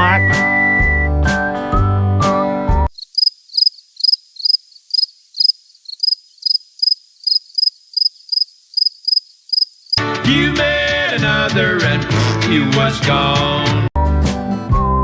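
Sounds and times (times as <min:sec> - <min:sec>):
cricket chirping: 0:02.9 - 0:10.0.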